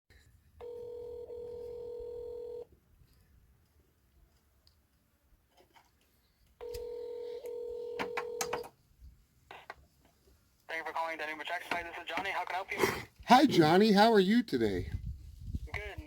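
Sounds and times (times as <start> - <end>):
telephone ringback tone: 0.6 - 2.7, 6.6 - 8.7.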